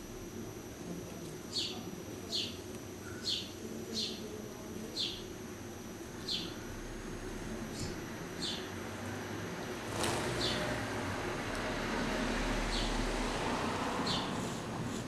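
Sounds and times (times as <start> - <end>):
low background hum: 0.0 - 15.0
small bird calling: 1.5 - 4.2, 4.9 - 5.3, 6.2 - 6.6, 7.7 - 8.7, 10.3 - 10.8, 14.0 - 14.6.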